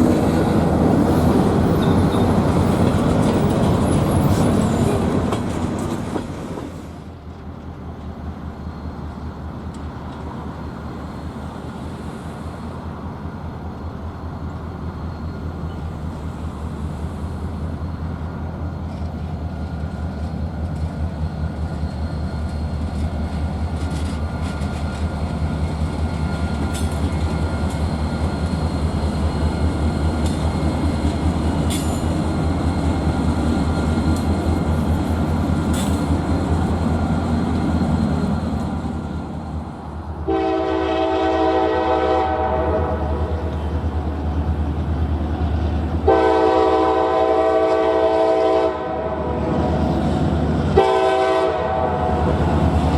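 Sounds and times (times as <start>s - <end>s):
train wheels clicking: 0.0s - 10.5s, 18.6s - 39.6s
diesel locomotive rumbling: 0.0s - 52.9s.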